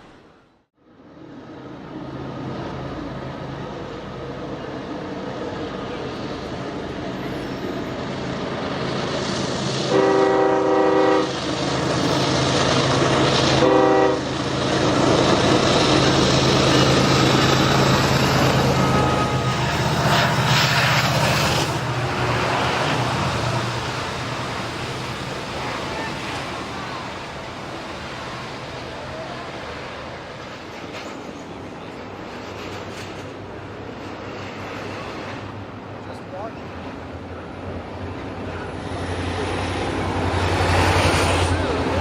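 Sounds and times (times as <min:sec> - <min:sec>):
diesel locomotive engine drone: 0:00.0 - 0:42.0
train wheels rolling on rails: 0:01.2 - 0:42.0
train air horn blasts: 0:09.8 - 0:11.4, 0:13.5 - 0:14.4.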